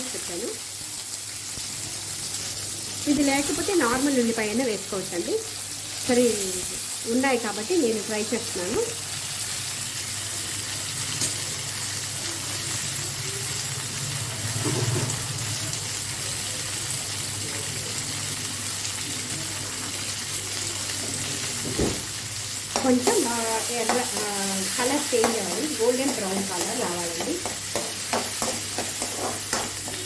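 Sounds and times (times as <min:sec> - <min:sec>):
shallots sizzling in hot oil: 0:00.0 - 0:30.0
utensil knocking on pan: 0:22.8 - 0:24.4, 0:25.0 - 0:30.0.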